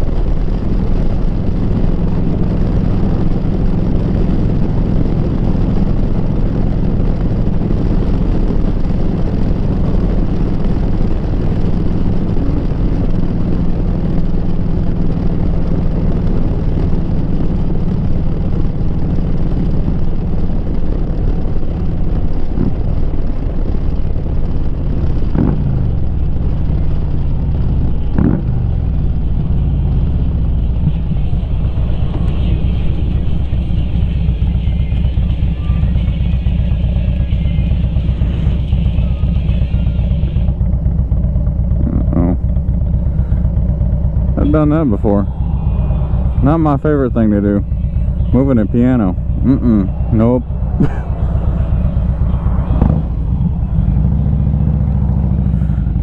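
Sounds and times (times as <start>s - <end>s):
wind rush over microphone: 0.0s - 39.4s
motorcycle engine cruising: 0.0s - 56.0s.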